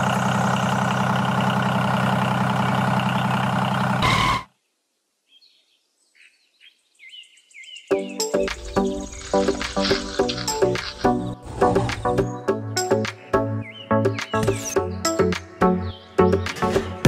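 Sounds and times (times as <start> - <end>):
toy engine running: 9.0 - 11.3.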